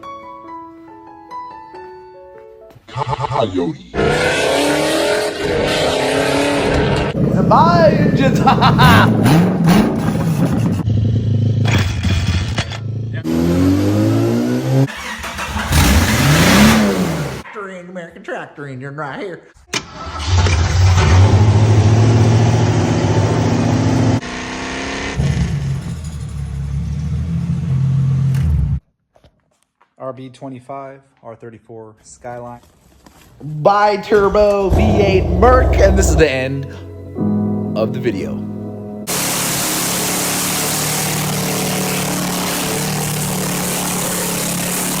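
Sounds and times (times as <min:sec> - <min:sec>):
tractor engine running: 0:06.9 - 0:13.1, 0:14.9 - 0:17.4, 0:39.1 - 0:45.0
strong hiss: 0:39.1 - 0:43.6
engine running steadily: 0:39.1 - 0:45.0.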